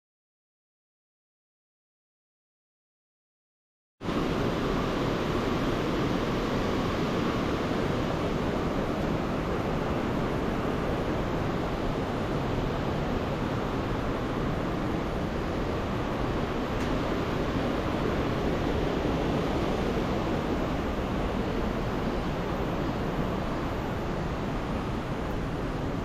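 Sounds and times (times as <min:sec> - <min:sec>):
river rushing roar: 0:04.0 - 0:26.0.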